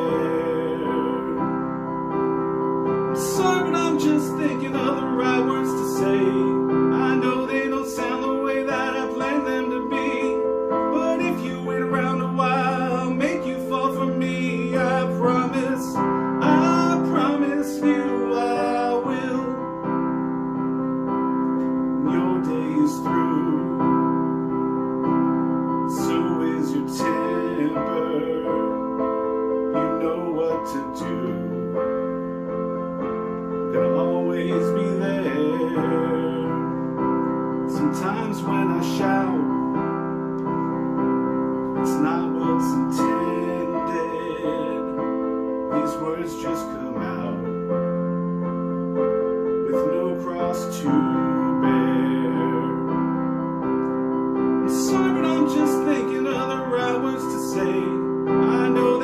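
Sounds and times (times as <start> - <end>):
piano pop ballad: 0.0 - 59.0.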